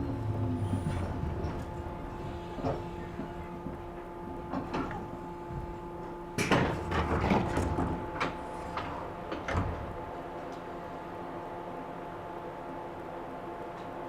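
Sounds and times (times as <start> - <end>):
train doors clattering and knocking: 0.0 - 10.7
train equipment hum: 0.0 - 14.0.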